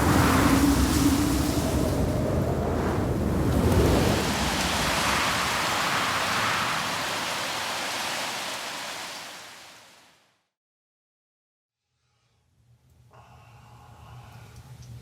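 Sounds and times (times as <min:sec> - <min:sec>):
blizzard wind blowing hard: 0:00.0 - 0:09.7.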